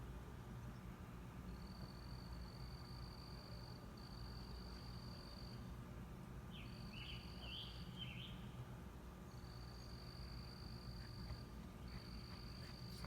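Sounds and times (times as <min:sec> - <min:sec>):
low steady hum: 0:00.0 - 0:13.0
bird chirping: 0:06.5 - 0:08.5.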